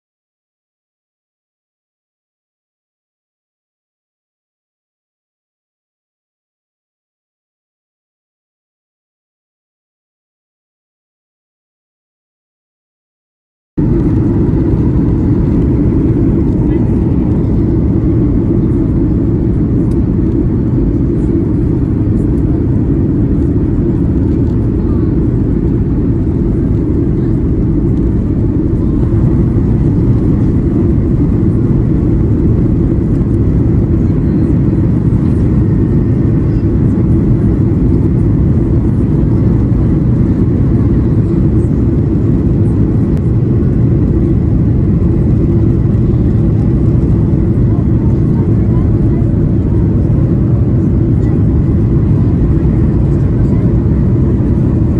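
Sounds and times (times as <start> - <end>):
airplane cabin engine rumble: 13.8 - 54.9.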